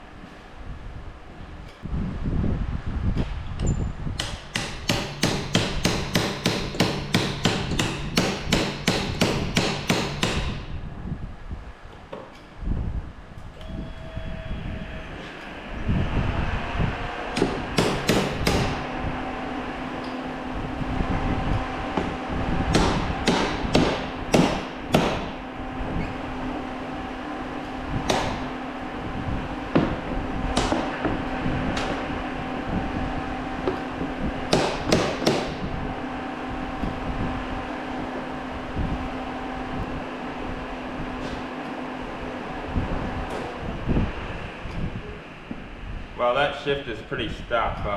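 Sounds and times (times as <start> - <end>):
steady mechanical hum: 0.0 - 47.9
hammer blows on metal: 17.3 - 18.9.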